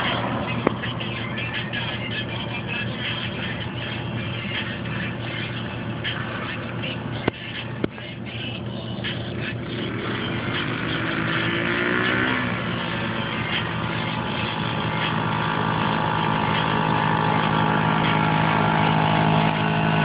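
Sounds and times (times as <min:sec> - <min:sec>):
dirt bike engine revving: 0:09.4 - 0:20.0.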